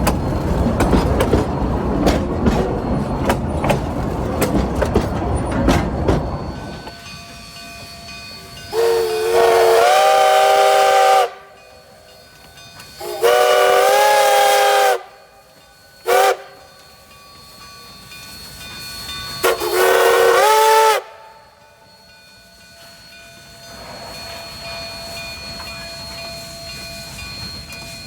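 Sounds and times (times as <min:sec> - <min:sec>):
steam locomotive whistle blasts: 0:06.6 - 0:17.6, 0:18.3 - 0:22.2.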